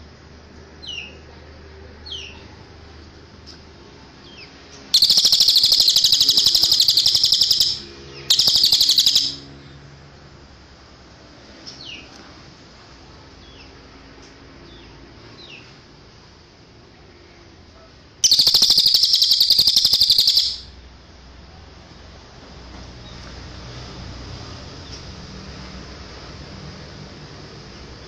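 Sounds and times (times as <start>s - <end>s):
rapid buzzing bird trills: 4.9s - 9.5s, 18.2s - 20.7s
bird whistle notes: 5.0s - 9.5s, 18.2s - 20.7s.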